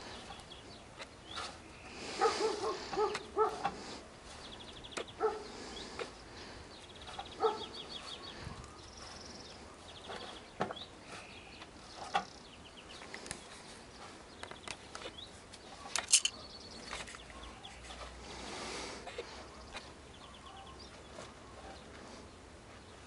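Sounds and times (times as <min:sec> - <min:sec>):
birds chirping and trilling: 0:00.0 - 0:23.0.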